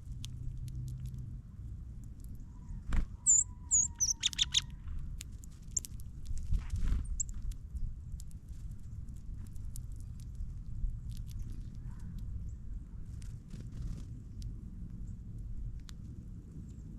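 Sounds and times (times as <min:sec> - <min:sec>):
small birds chirping: 0:02.1 - 0:06.0, 0:07.0 - 0:07.5, 0:10.0 - 0:12.8
harsh bird calls: 0:03.2 - 0:04.7
light ticks: 0:15.7 - 0:16.1.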